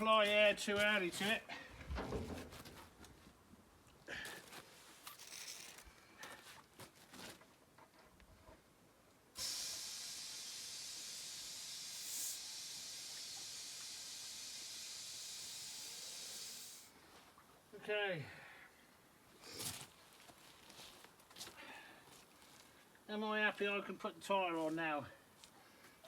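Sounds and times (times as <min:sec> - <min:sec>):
compressed air hissing: 0:09.4 - 0:16.9.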